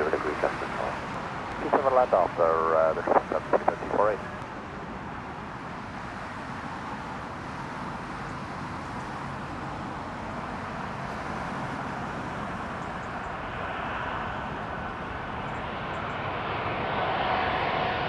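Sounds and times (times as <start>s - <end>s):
jet engine roar: 0.0s - 4.8s.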